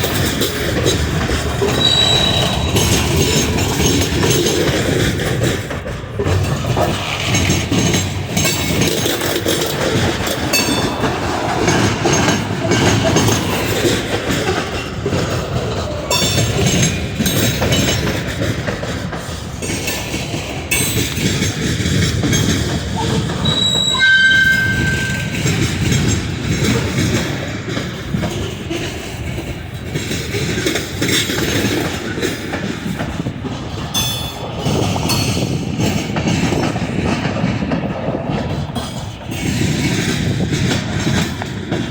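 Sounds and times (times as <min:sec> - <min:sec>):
wheels clicking over rail joints: 0:00.0 - 0:41.9
high wheel squeal: 0:01.6 - 0:04.6, 0:23.0 - 0:26.1.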